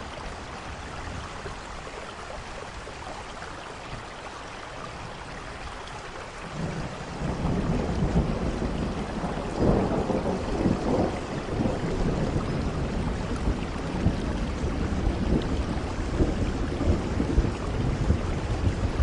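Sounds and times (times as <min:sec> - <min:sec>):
steady rain: 0:00.0 - 0:19.0
rumbling thunder: 0:06.4 - 0:19.0.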